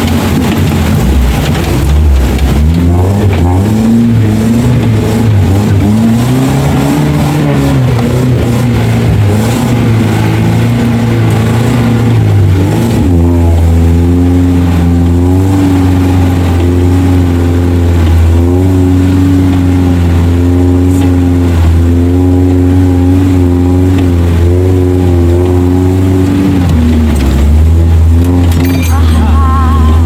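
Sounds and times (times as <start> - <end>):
off-road vehicle engine under load: 0.0 - 30.0.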